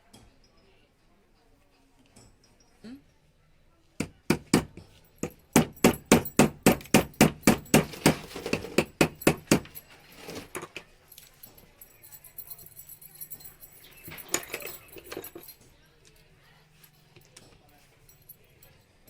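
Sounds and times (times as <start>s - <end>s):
hammer tapping metal: 4.0s - 9.8s.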